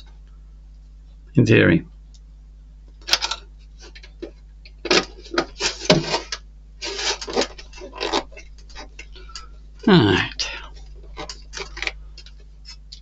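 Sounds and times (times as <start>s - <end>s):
plastic parts clicking and rattling: 3.0s - 6.4s, 10.8s - 13.0s.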